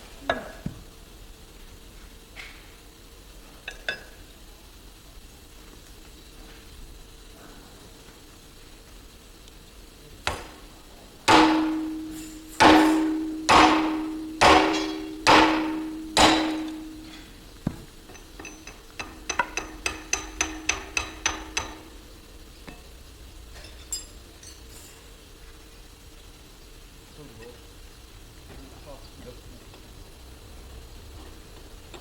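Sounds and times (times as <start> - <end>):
hammer striking metal: 10.3 - 10.6, 11.3 - 22.0.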